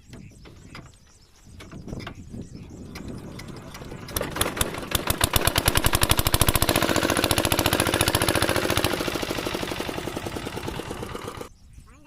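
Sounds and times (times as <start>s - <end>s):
diesel engine starting: 2.4s - 11.5s.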